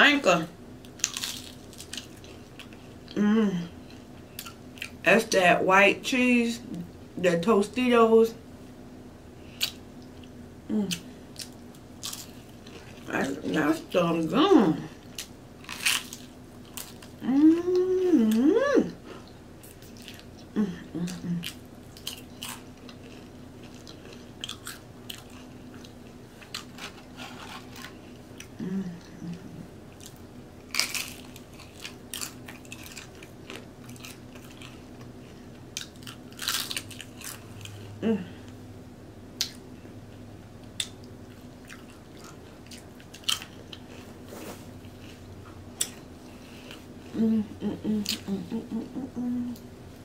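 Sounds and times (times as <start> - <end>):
low hum: 0.0 - 50.0
tortilla chips crunching: 0.8 - 2.8, 11.3 - 13.1, 15.0 - 17.2, 21.4 - 28.5, 30.0 - 35.1, 35.7 - 37.8, 40.8 - 45.2
wet chewing: 40.6 - 46.9
soft mouth sounds: 45.8 - 49.7.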